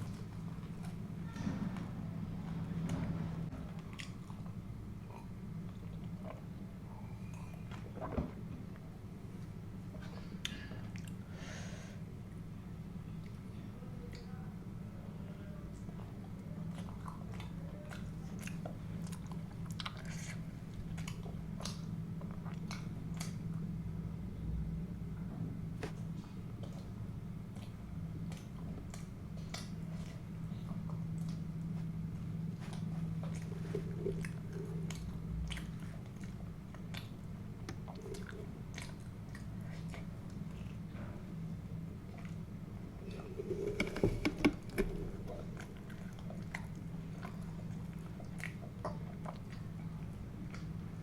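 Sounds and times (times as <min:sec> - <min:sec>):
steady low hum: 0:00.0 - 0:51.0
chewing and biting food: 0:16.0 - 0:23.6, 0:26.6 - 0:41.0, 0:43.0 - 0:51.0.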